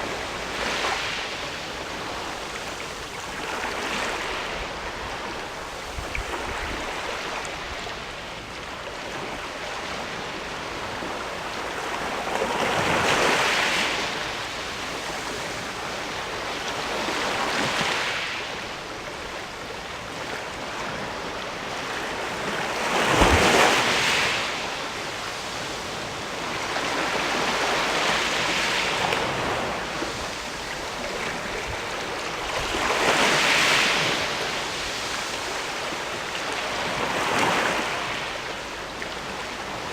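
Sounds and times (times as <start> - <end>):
waves washing against rocky shore: 20.2 - 39.9.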